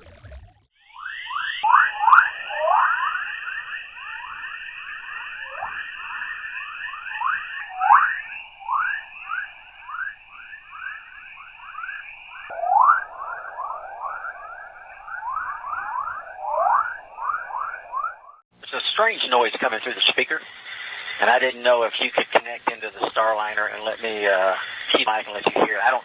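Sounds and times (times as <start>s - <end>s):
rising chirps: 0.0s - 18.4s.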